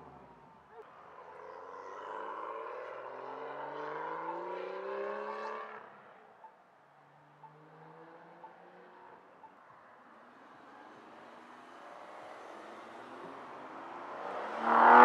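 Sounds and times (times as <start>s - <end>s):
car engine accelerating: 12.6s - 15.0s.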